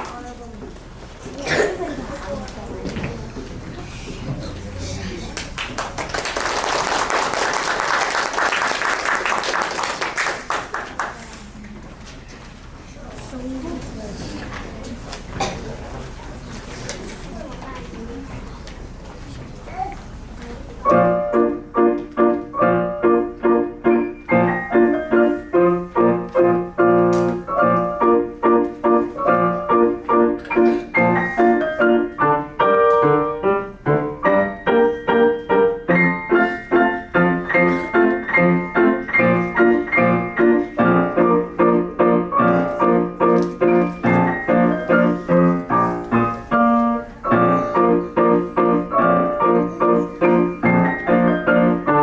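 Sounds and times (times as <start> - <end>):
piano playing: 20.8 - 52.0.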